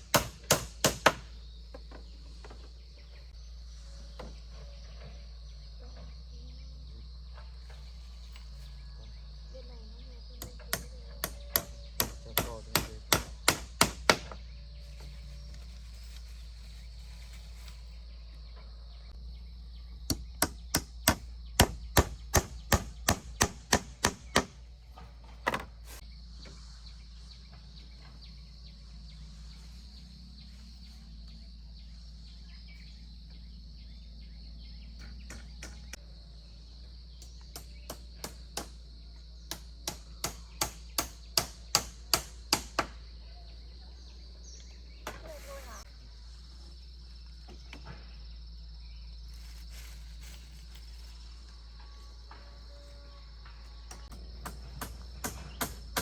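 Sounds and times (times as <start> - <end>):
sharp hand tool strikes: 0.0 - 1.3, 10.4 - 14.4, 20.1 - 24.6, 39.5 - 42.9, 53.9 - 56.0
high insect buzz: 0.0 - 56.0.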